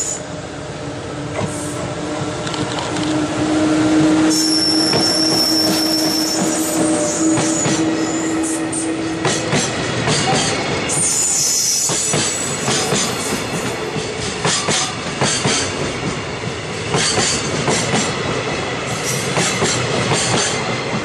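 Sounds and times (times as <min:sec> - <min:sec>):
electric locomotive humming: 0:00.0 - 0:21.0
high wheel squeal: 0:04.2 - 0:08.9.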